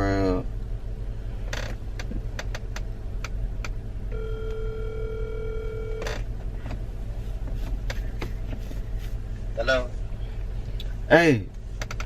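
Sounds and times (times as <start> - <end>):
phone ringback tone: 4.1 - 6.2.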